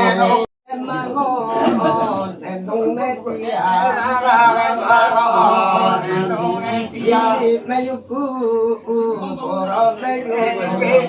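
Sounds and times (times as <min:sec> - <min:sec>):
man chanting: 0:00.0 - 0:11.0.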